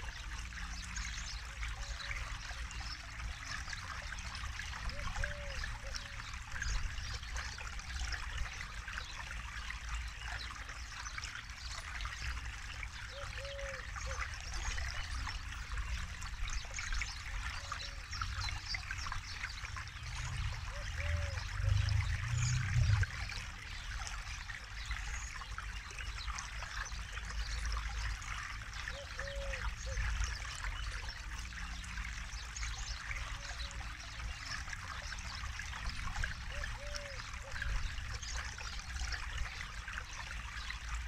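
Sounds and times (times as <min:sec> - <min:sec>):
river water flowing: 0:00.0 - 0:41.0
low-pitched bird calls: 0:13.1 - 0:14.2, 0:36.5 - 0:37.7
low rumble: 0:21.6 - 0:23.3.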